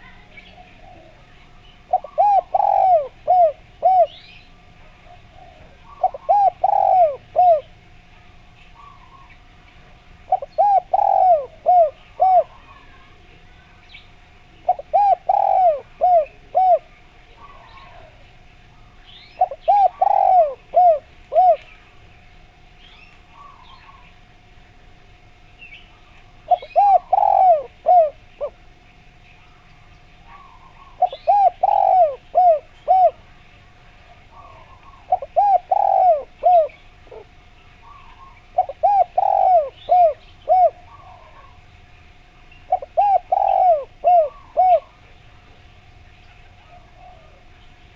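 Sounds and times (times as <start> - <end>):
dove cooing: 0.0 - 8.0, 8.7 - 13.8, 14.4 - 22.0, 23.3 - 24.3, 26.0 - 28.7, 29.4 - 47.9
faint steady hum: 0.0 - 47.9
faint small bird chirps: 18.8 - 20.6.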